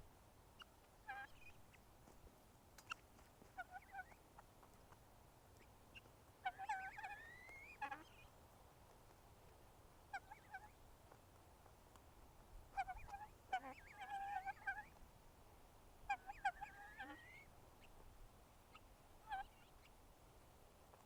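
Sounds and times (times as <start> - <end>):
poultry calling: 0.6 - 1.8, 2.9 - 4.2, 5.6 - 8.3, 10.1 - 10.8, 12.7 - 15.0, 16.0 - 18.0, 18.7 - 20.0.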